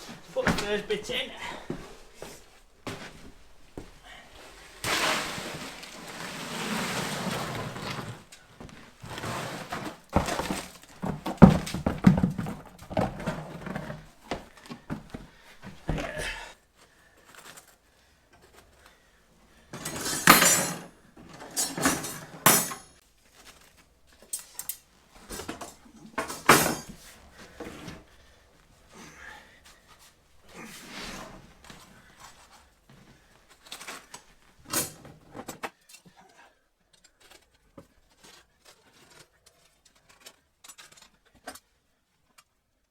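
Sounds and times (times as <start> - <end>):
shovel scraping wet concrete: 4.6 - 8.2.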